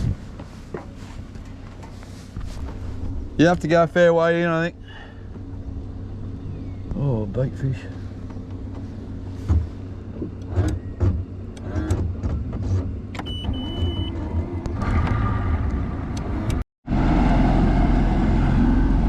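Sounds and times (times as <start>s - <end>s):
engine idling: 0.0s - 11.6s.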